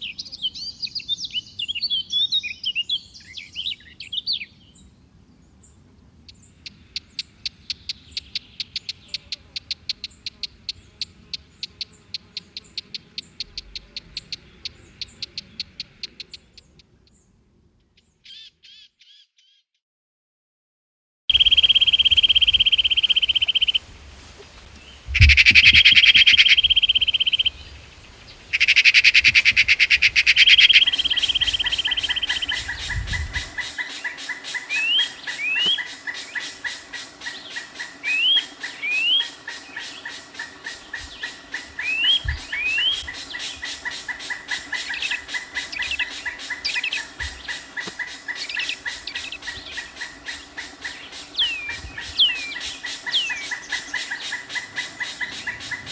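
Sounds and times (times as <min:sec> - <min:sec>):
bird rapid trill: 0:21.3 - 0:23.8, 0:30.4 - 0:55.9
short rising bird chirps: 0:30.4 - 0:55.9
pulsing chorus: 0:30.8 - 0:55.9.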